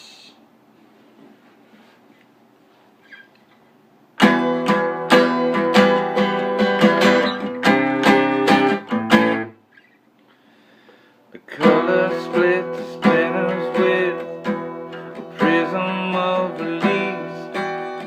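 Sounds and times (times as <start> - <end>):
guitar strumming chords: 4.2 - 9.7, 11.4 - 18.0.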